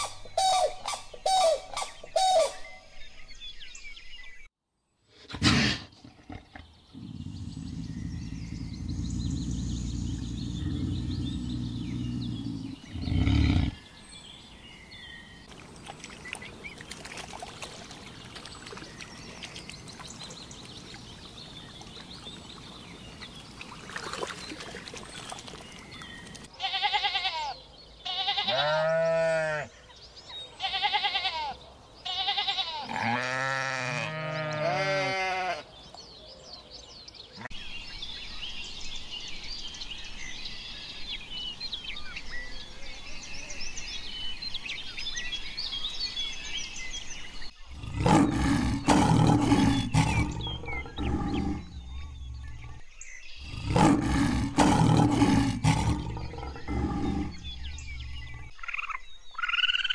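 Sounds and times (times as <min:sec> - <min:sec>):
loud low rough roar: 0:06.3 - 0:13.8, 0:47.7 - 0:52.8, 0:53.4 - 0:58.5.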